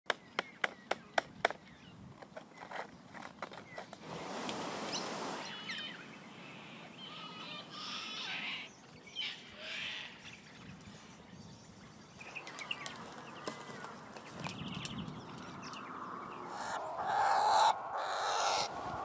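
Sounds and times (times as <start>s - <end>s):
outdoor ambient noise: 0.1s - 19.0s
birds chirping and calling: 4.9s - 19.0s.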